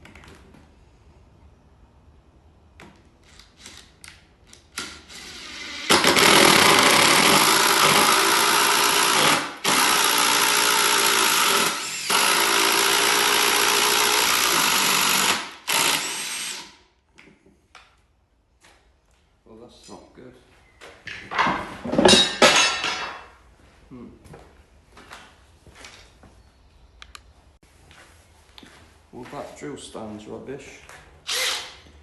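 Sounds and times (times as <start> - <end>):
electric drill boring into wood: 4.8 - 16.8, 31.3 - 31.8.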